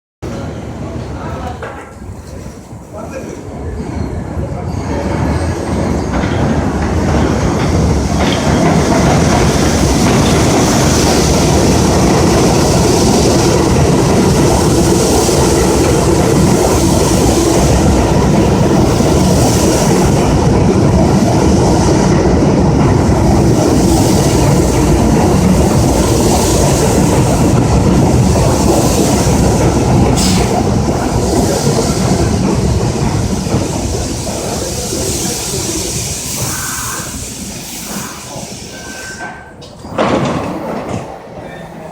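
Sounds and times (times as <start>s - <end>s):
subway train wheels rumbling: 0.2s - 41.9s
brief high squeak: 37.9s - 39.5s.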